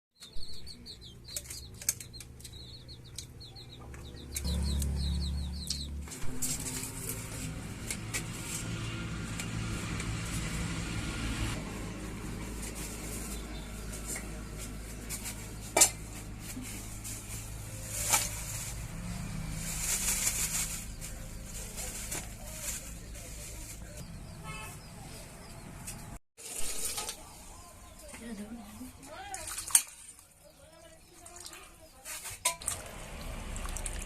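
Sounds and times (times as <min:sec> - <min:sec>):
small bird chirping: 0:00.2 - 0:06.0.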